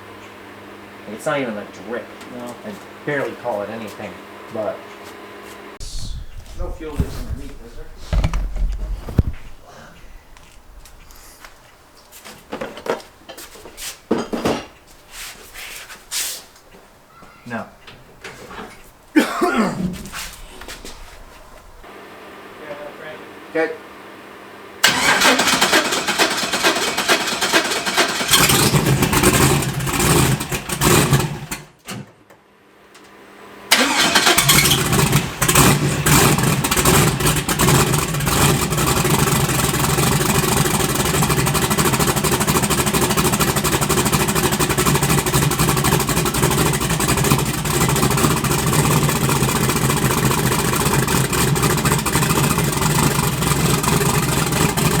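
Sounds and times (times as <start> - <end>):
car engine cranking and running: 6.6 - 9.6, 24.8 - 31.8, 33.7 - 55.0.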